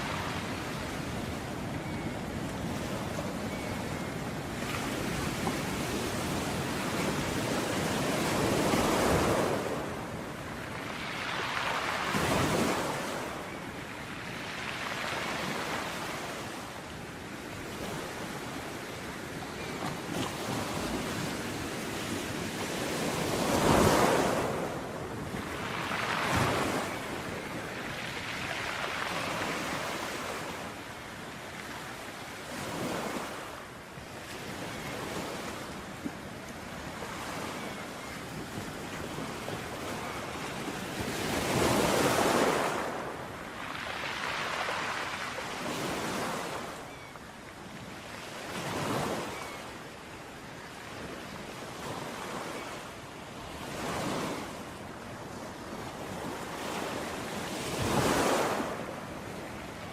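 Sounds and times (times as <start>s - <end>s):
ocean waves breaking on beach: 0.0s - 59.9s.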